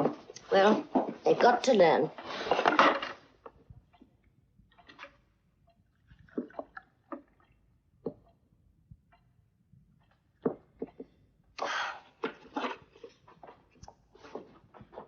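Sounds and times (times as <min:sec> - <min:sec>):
faint clicks and knocks: 0:02.5 - 0:11.2.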